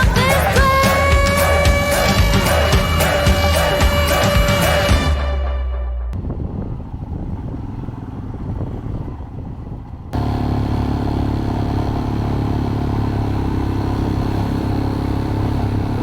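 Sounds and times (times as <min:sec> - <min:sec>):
motorcycle engine drone: 0:00.0 - 0:16.0
rough gusty rumble: 0:00.0 - 0:16.0.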